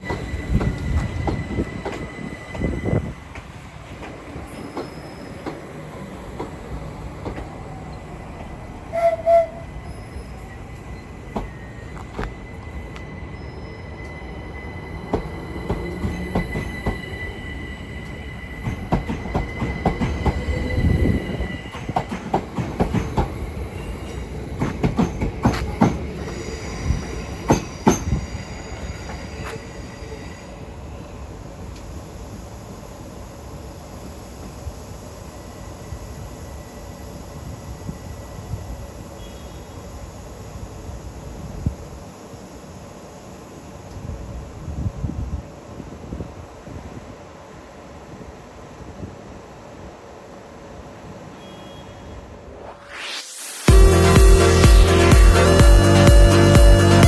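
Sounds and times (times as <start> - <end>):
train rumble: 0.0 - 51.4
wheel squeal: 4.5 - 5.8, 8.9 - 22.2.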